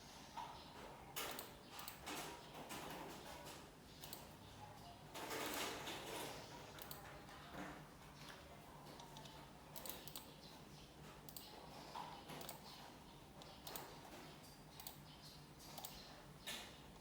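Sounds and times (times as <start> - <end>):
keyboard and mouse clicking: 1.2 - 2.2, 4.0 - 4.4, 6.7 - 7.1, 8.2 - 10.5, 11.2 - 17.0.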